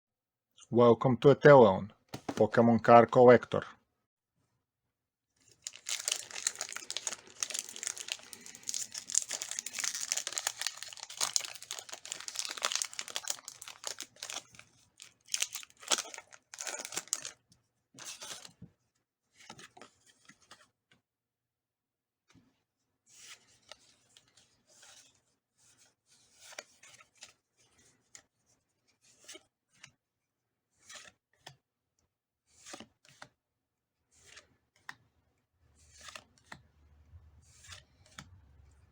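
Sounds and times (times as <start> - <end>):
soft rustles and clicks of handling: 5.4 - 21.0, 34.1 - 38.9
foil wrapper tearing and crinkling: 5.5 - 17.4.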